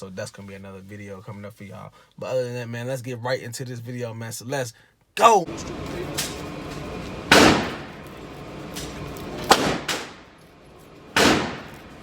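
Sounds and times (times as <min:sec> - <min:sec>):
pistol shots: 0:06.1 - 0:08.0, 0:08.6 - 0:10.4, 0:11.1 - 0:12.0.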